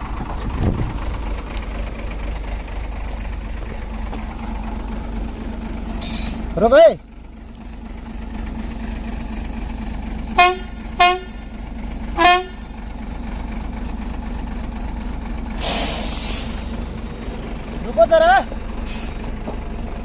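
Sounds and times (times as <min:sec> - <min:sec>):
truck engine running: 0:00.0 - 0:20.0
truck horn toots: 0:10.3 - 0:11.4, 0:12.2 - 0:12.7
short burst of hiss: 0:15.6 - 0:16.7.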